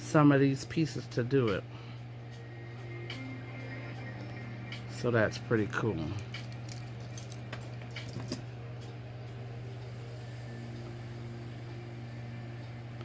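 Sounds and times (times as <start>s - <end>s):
steady low hum: 0.0s - 13.0s
metal jewelry clicking and jangling: 6.3s - 8.4s.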